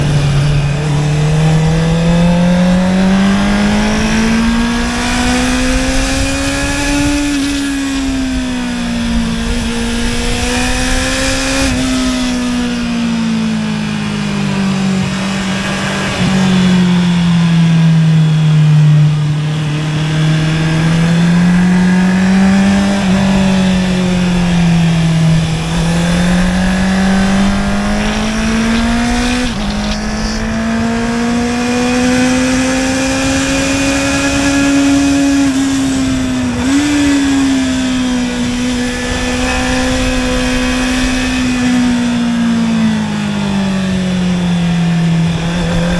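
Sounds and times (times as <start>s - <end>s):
motorcycle engine revving: 0.0s - 45.9s
gear upshifts: 13.8s - 45.9s.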